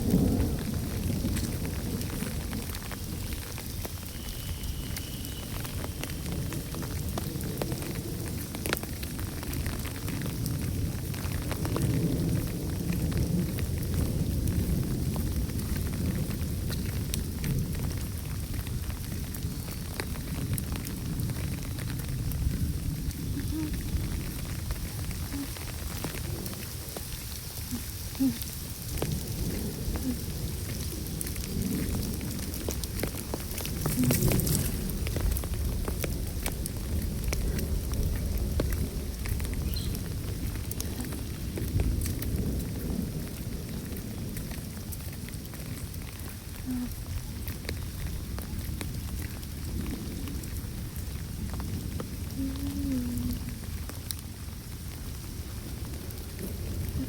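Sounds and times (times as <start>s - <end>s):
rain falling: 0.0s - 57.0s
raindrops ticking on surfaces: 0.0s - 57.0s.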